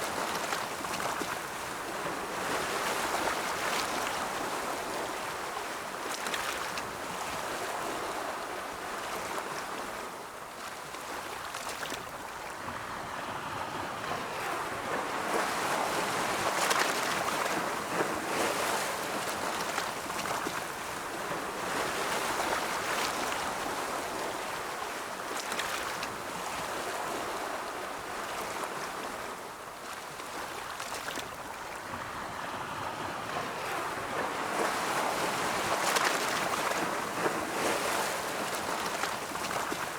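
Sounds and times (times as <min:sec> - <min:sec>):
ocean waves rolling in: 0:00.0 - 0:39.9.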